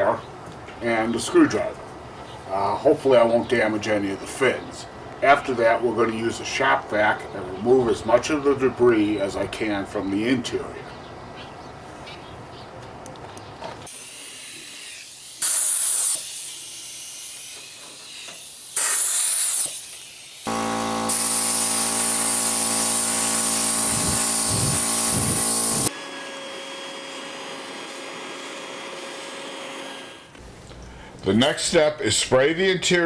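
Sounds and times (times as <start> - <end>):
compressed air blasts: 13.9 - 25.9
shop vacuum running: 13.9 - 31.1.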